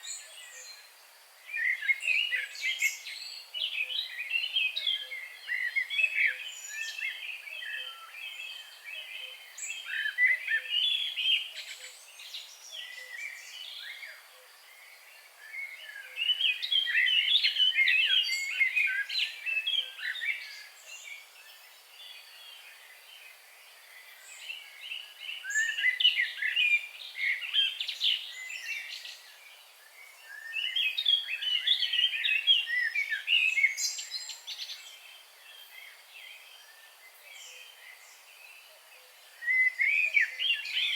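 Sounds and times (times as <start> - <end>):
faint background hiss: 0.0 - 40.9
songbird twittering: 23.9 - 38.6, 39.3 - 40.9.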